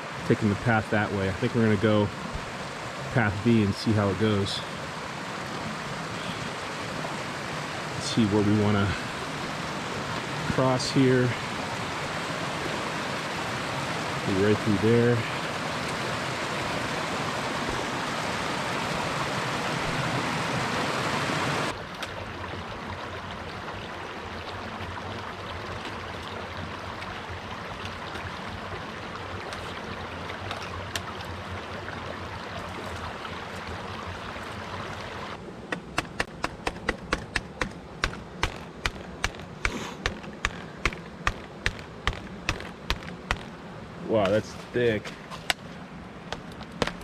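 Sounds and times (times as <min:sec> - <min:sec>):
water rushing over rocks: 0:00.0 - 0:47.0
sharp regular taps: 0:35.7 - 0:43.6.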